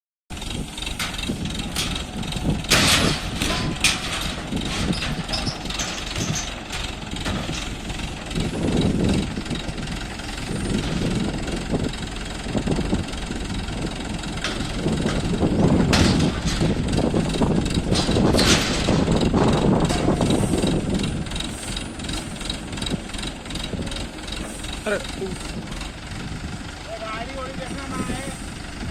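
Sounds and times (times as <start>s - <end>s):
crane diesel engine running: 0.3s - 28.9s
sharp metal knocks: 0.9s - 8.2s, 14.4s - 24.5s.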